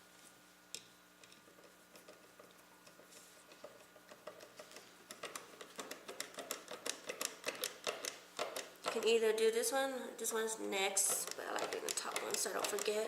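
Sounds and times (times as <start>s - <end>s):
screwdriver ticking: 3.6s - 9.1s.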